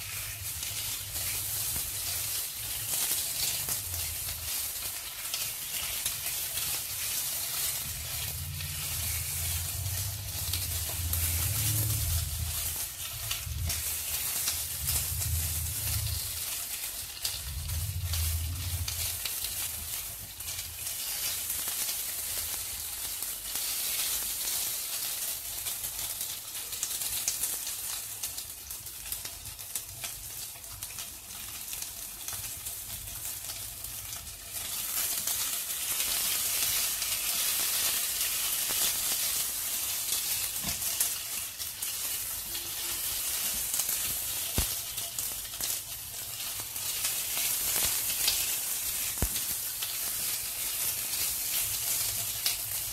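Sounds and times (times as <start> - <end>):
spatula scraping wok: 0.0 - 22.8, 34.2 - 52.9
prawns sizzling in hot oil: 0.0 - 52.9.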